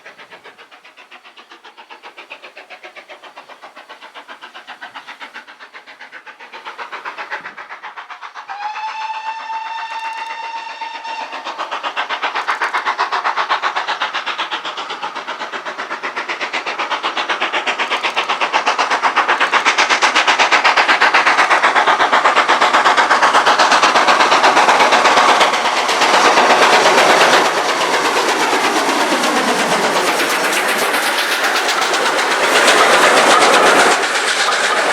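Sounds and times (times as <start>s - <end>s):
steam train exhaust beats: 0.0s - 34.9s
steam locomotive whistle: 8.4s - 11.6s
rail clatter: 9.9s - 34.9s.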